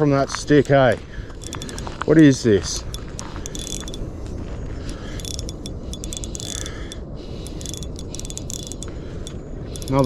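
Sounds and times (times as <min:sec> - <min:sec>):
fishing reel clicking: 0:00.4 - 0:01.9, 0:02.8 - 0:04.0, 0:04.9 - 0:10.0.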